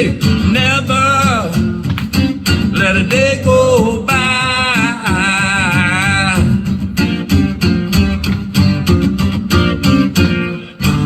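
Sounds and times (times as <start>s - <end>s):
guitar strumming: 0.0s - 11.0s
person singing: 2.6s - 6.7s.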